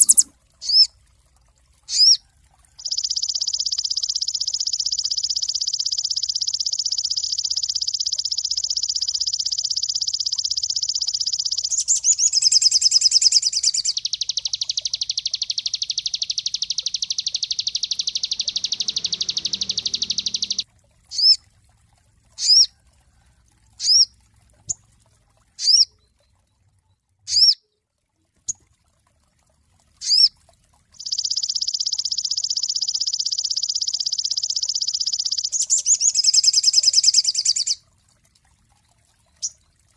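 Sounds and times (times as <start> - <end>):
songbird rapid high trills: 0.0 - 0.9, 1.9 - 2.2, 2.8 - 21.4, 31.0 - 37.8
songbird sharp whistled notes: 0.0 - 0.9.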